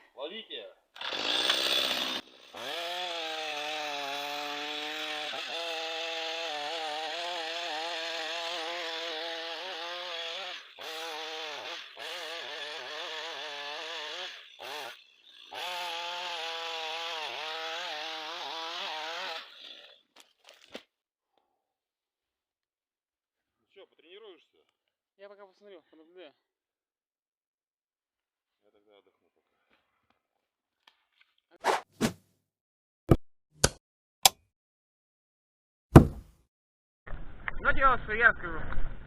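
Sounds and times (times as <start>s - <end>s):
chainsaw cutting into tree: 1.0s - 20.8s.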